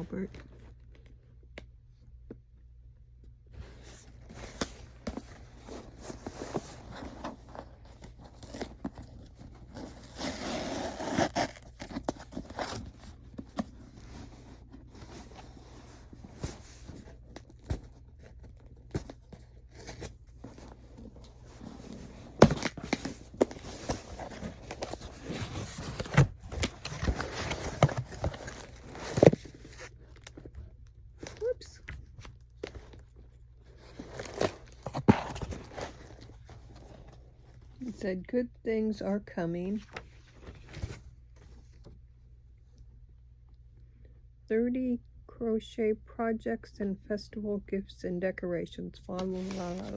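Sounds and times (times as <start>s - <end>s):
wrapping rustling and tearing: 19.7s - 30.5s.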